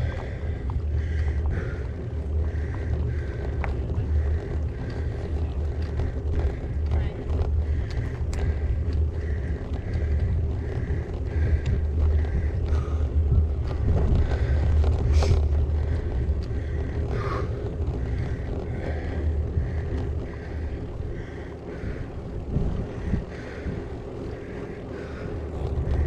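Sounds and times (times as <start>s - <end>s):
bicycle tyre noise: 0.0s - 26.0s
wind rumble on microphone: 0.0s - 26.0s.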